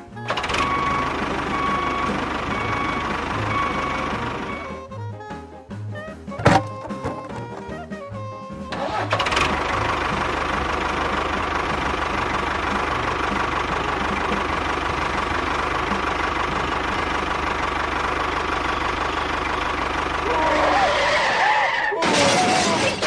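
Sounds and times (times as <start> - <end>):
small engine knocking beat: 6.3 - 20.2.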